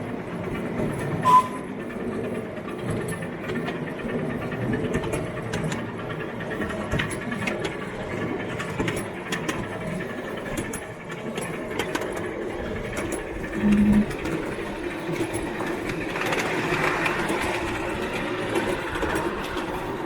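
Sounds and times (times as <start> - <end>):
wheels clicking over rail joints: 0.0 - 20.0
short low beep: 1.2 - 1.7, 13.6 - 14.1.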